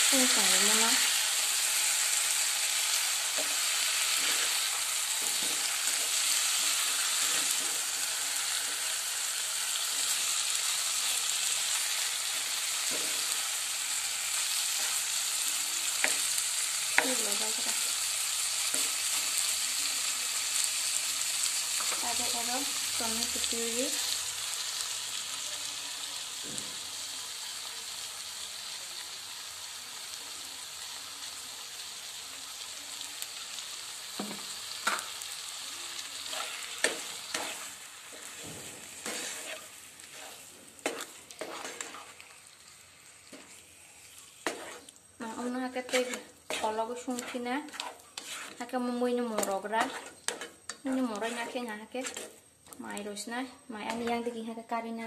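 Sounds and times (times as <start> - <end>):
spatula stirring in a pan: 0.0 - 25.4, 28.6 - 52.8
chicken sizzling in oil: 0.0 - 54.5.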